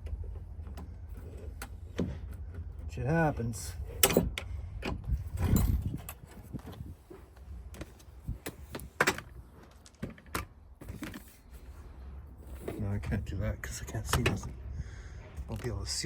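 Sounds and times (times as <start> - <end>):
handling clicks and knocks: 3.9 - 11.5, 14.0 - 14.6.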